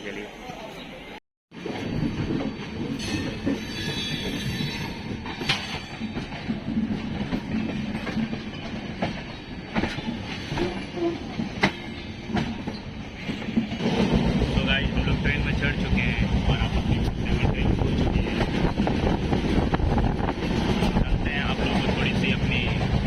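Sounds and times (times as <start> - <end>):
train rumbling on rails: 0.1 - 23.0
sharp train clanks: 1.6 - 23.0
high wheel squeal: 3.0 - 5.1.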